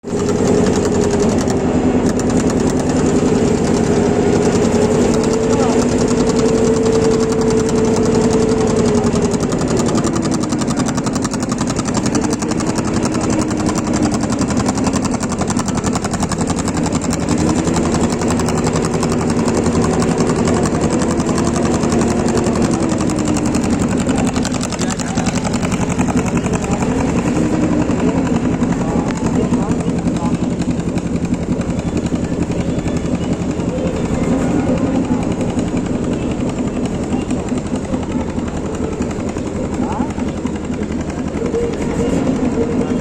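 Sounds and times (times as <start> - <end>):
motor boat engine: 0.0 - 43.0.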